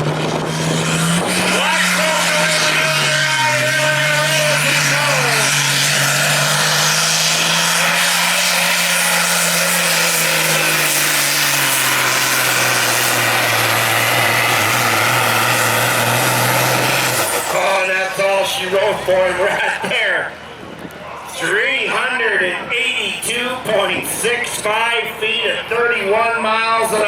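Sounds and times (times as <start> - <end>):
engine at full power: 0.0 - 21.0.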